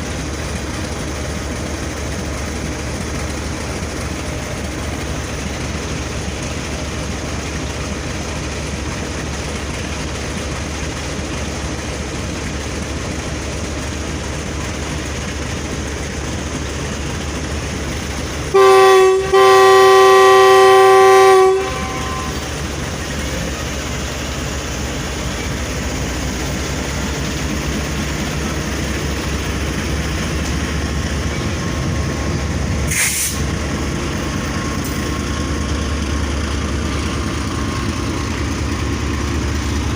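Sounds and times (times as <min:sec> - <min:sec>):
train rumble: 0:00.0 - 0:39.9
locomotive horn blast: 0:18.5 - 0:22.6.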